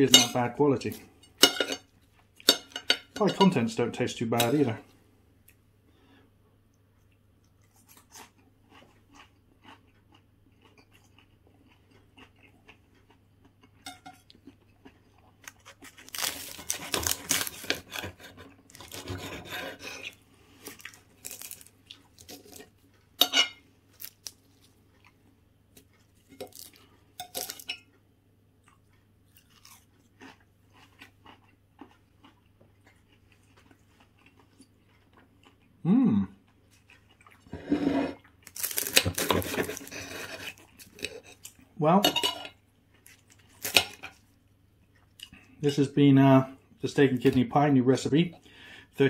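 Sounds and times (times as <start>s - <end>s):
cutlery clinking on plate: 1.3s - 3.6s, 13.8s - 14.3s, 23.2s - 23.6s, 42.0s - 42.6s
person chewing pastry: 6.6s - 37.6s, 38.2s - 41.8s, 42.5s - 45.7s.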